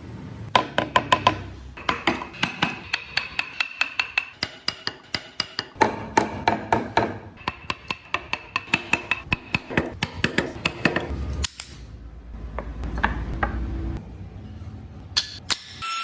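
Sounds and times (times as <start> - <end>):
hammering on wood: 3.0 - 11.1.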